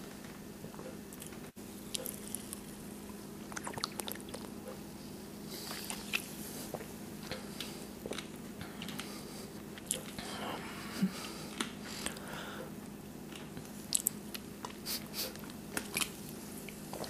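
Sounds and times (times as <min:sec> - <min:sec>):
steady low hum: 0:00.0 - 0:17.0
person chewing crunchy snack: 0:01.2 - 0:02.8
breathing: 0:08.6 - 0:09.6, 0:10.2 - 0:12.7.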